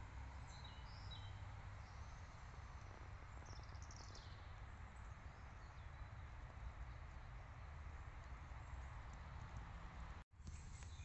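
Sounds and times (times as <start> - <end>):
bird chirps: 0.4 - 7.4, 10.4 - 11.0.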